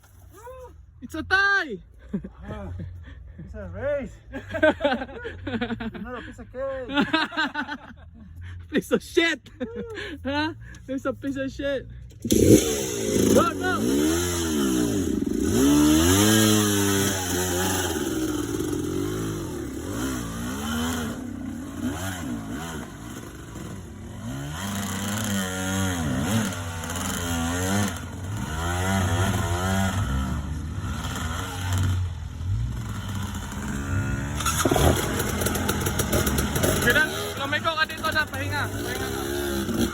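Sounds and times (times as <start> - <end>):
dirt bike engine revving: 12.2 - 39.9.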